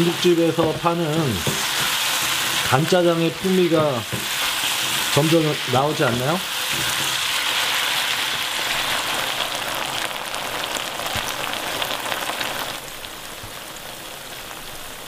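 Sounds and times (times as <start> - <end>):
spatula scraping a wok: 0.0 - 9.1
food sizzling in a wok: 0.0 - 15.0.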